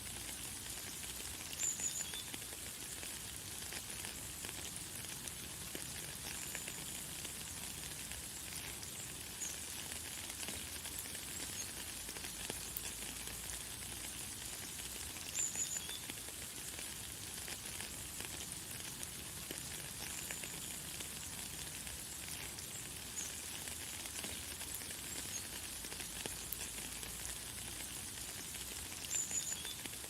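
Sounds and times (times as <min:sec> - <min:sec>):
light rain pattering: 0:00.0 - 0:30.0.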